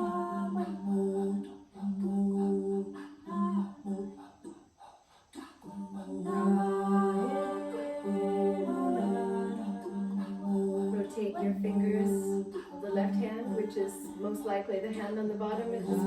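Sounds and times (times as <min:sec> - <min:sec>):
woman humming a slow melody: 0:00.0 - 0:04.1.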